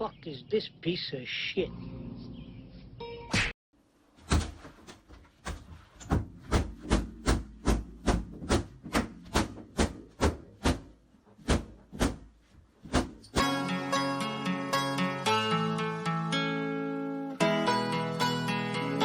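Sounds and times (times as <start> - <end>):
sharp knocks: 4.2 - 13.5.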